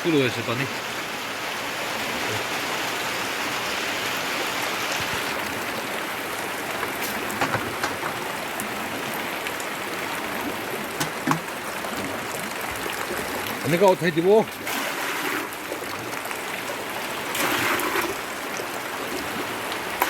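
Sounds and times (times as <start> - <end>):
heavy rain pouring: 0.0 - 20.0
clicks of raindrops striking: 6.3 - 8.7, 10.9 - 12.0.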